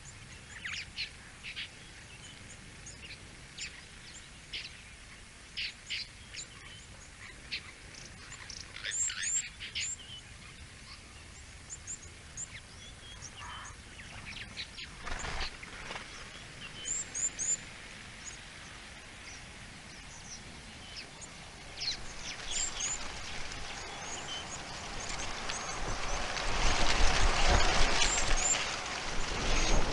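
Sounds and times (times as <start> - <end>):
outdoor background hiss: 0.0 - 29.9
small birds chirping: 0.0 - 29.9
rushing noise: 21.2 - 29.9.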